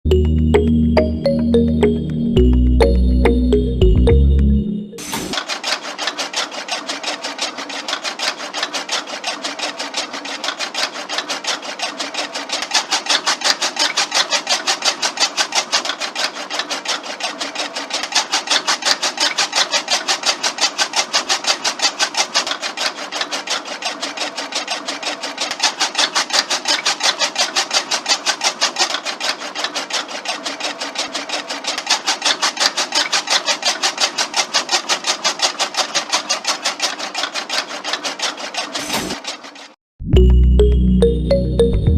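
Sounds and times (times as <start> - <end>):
small motor grass cutter clattering: 5.0 - 39.8.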